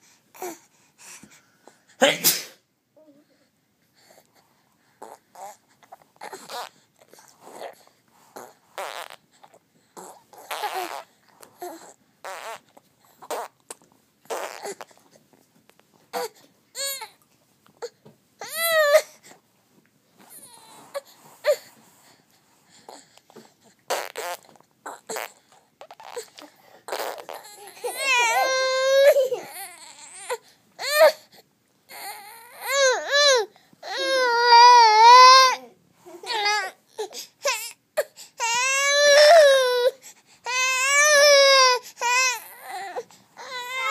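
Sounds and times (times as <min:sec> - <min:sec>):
child making breathy noises: 0:27.6 - 0:29.5
child squealing: 0:27.9 - 0:29.6, 0:43.5 - 0:43.9.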